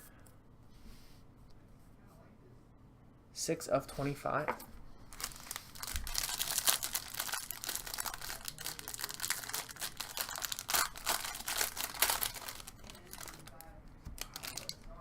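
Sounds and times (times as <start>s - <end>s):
plastic packaging crinkling: 5.1s - 14.9s.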